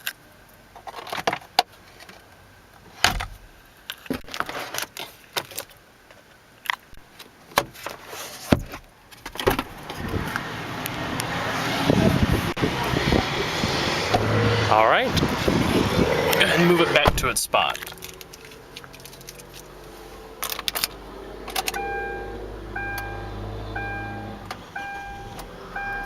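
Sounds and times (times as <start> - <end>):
rustling and sliding noise: 7.7 - 8.9
seat levers clicking and clunking: 21.5 - 23.2.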